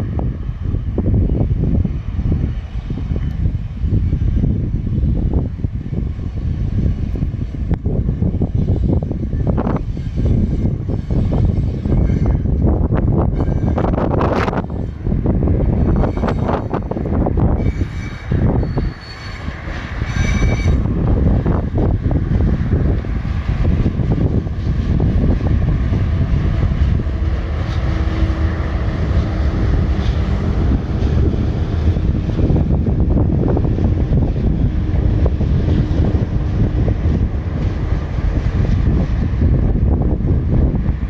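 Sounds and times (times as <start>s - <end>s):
train wagons rolling on rails: 0.0s - 41.0s
high wheel squeal: 8.6s - 12.5s, 13.3s - 15.0s, 15.7s - 16.8s, 17.5s - 20.9s.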